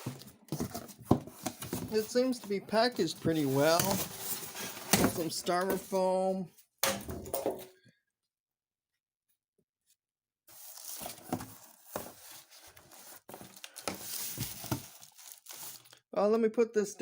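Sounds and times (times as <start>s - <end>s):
styrofoam and wrapping rustling: 0.0s - 6.3s, 10.5s - 16.0s.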